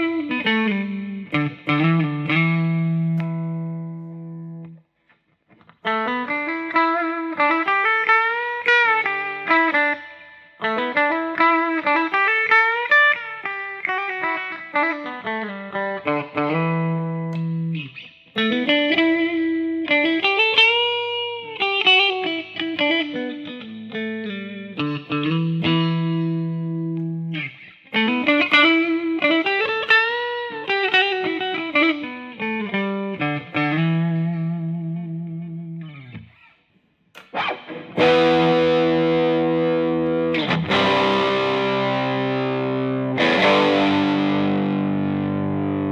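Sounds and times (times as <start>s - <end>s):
electric guitar sliding melody: 0.0s - 4.8s, 5.6s - 36.5s, 37.2s - 45.9s
distorted electric guitar: 37.2s - 45.9s.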